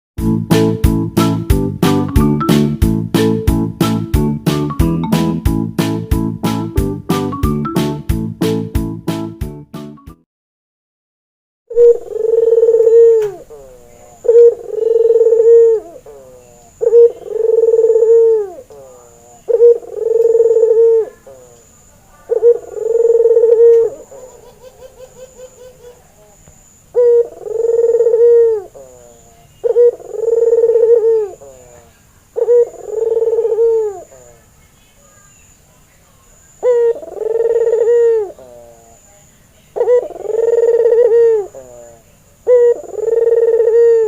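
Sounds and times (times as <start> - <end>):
rolling run of short notes: 0.2 - 10.0
dove cooing: 11.7 - 34.5, 36.6 - 39.1, 39.7 - 44.0.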